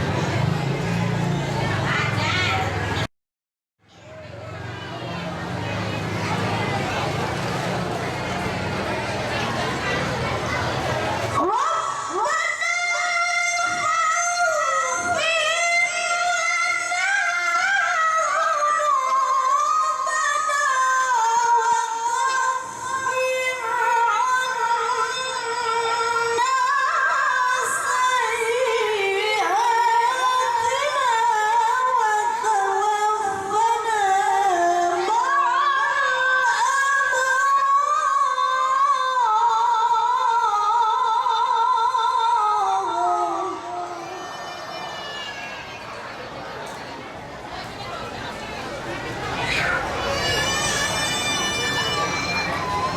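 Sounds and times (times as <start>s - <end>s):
woman chanting melodically: 11.3s - 44.2s.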